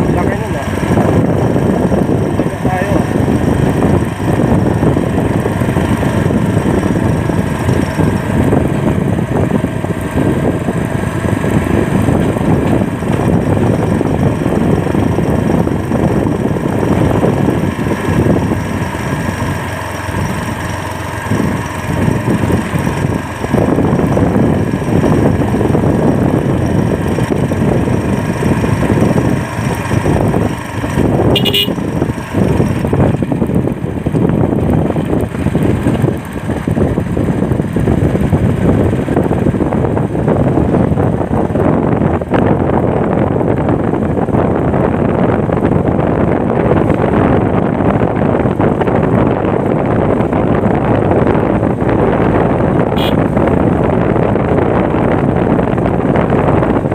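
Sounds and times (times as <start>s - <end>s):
motorcycle engine and road noise: 0.0s - 56.9s
wind buffeting microphone: 0.0s - 56.9s.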